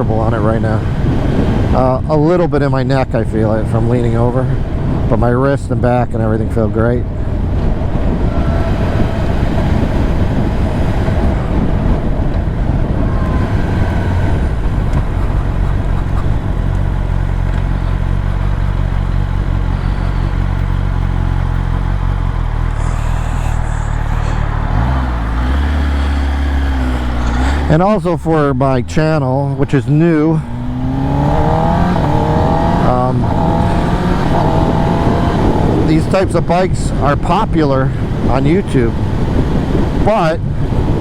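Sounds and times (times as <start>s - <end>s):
wind noise: 0.0s - 41.0s
motorcycle engine running: 6.9s - 37.1s.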